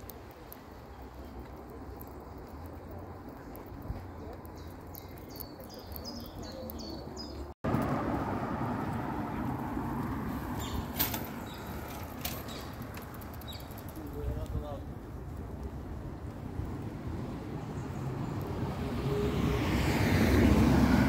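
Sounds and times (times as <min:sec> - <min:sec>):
small bird chirping: 0:03.4 - 0:07.5, 0:10.6 - 0:14.2.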